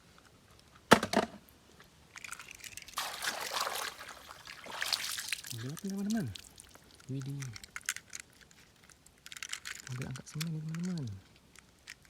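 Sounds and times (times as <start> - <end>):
toy car knock and rattle: 0.9 - 1.4
water pouring and splashing: 2.4 - 7.1.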